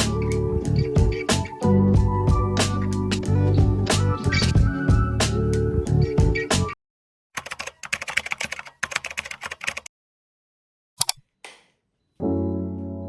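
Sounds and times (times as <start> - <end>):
background music: 0.0 - 6.8, 12.2 - 13.0
typing on computer keyboard: 7.4 - 9.9.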